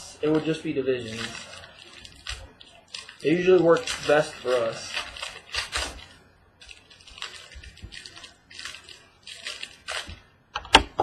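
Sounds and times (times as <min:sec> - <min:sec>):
packaging crinkling and rustling: 0:00.0 - 0:10.3.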